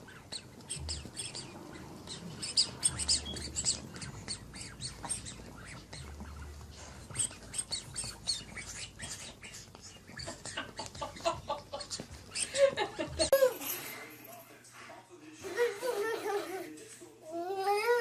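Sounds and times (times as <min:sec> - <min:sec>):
bird chirping and squawking: 0:00.0 - 0:12.7.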